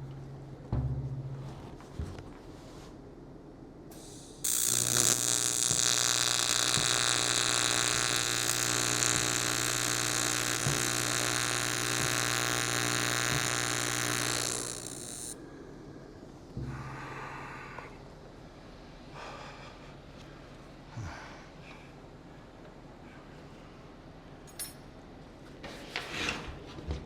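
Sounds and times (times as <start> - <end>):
welding arc buzzing: 3.9 - 15.4.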